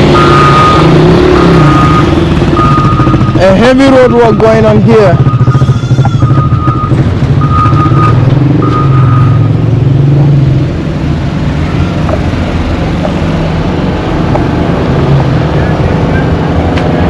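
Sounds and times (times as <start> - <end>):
heavy machine engine rumble: 0.0 - 17.0
reversing alarm beeps: 0.1 - 9.6.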